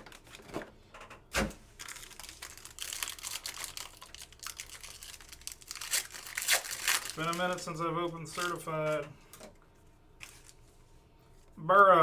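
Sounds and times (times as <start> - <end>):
foil wrappers crinkling and tearing: 1.7 - 9.0, 10.2 - 10.6
cards being handled: 5.7 - 10.8.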